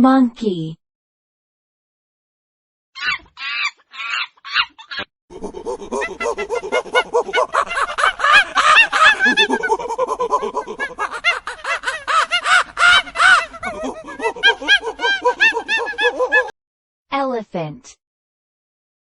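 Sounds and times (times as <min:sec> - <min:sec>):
monkey chattering: 0:03.0 - 0:16.5.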